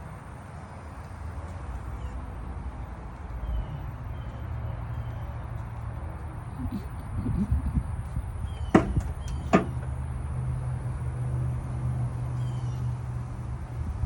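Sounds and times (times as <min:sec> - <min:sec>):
vehicle rumble: 0:00.0 - 0:14.0
sharp knocks: 0:08.7 - 0:10.0.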